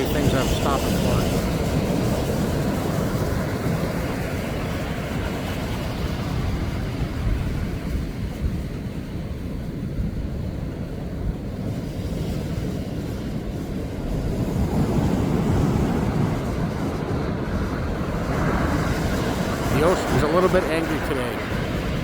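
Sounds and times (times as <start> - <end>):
wind buffeting microphone: 0.0 - 22.0
surf breaking: 14.1 - 22.0.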